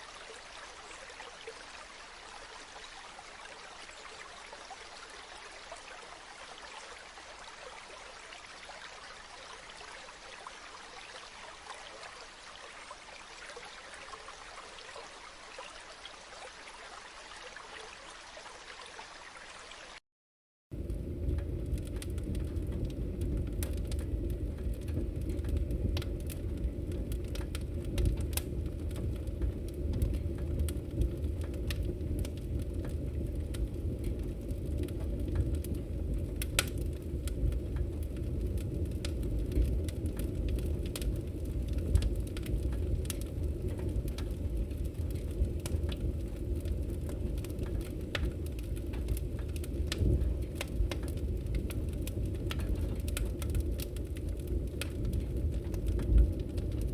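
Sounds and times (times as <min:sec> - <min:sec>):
campfire crackling: 0:20.7 - 0:56.9.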